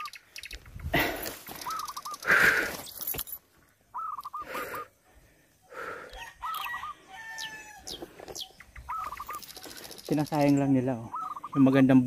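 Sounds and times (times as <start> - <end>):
bird warbling call: 0.0 - 0.8, 1.6 - 2.4, 3.9 - 4.8, 6.4 - 12.0
high bird chirps: 0.0 - 0.9, 1.5 - 3.0, 3.9 - 4.8, 6.4 - 12.0.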